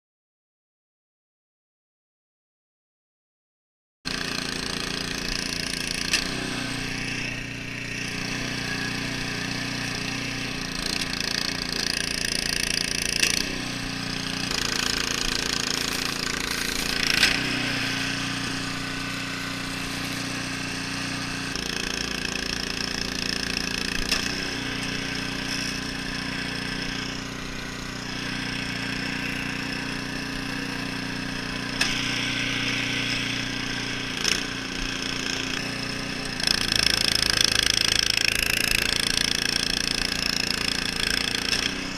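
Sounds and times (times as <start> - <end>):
engine running: 4.1 - 41.9.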